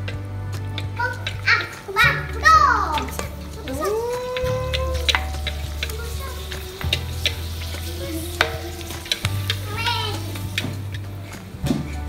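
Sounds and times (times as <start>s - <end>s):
crackers sizzling in hot oil: 0.0s - 12.0s
metal spatula clicking on wok: 3.0s - 10.8s.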